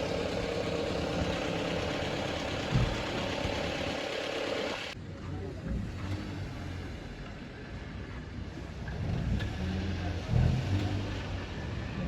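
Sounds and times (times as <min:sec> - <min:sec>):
car engine humming: 0:00.0 - 0:05.0.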